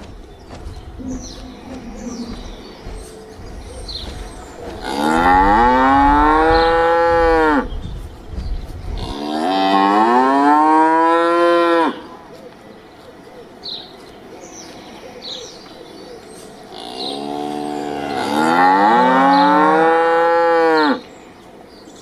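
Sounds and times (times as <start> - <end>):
cow mooing: 4.8 - 7.7, 9.0 - 12.1, 16.8 - 21.0.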